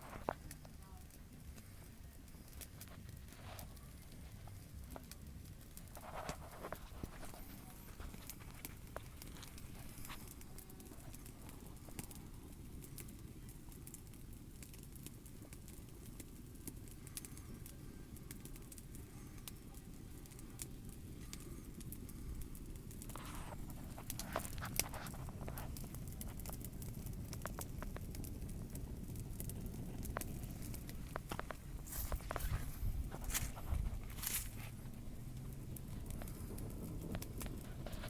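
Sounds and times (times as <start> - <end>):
campfire crackling and popping: 0.0 - 38.0
low steady rumble: 14.3 - 38.0.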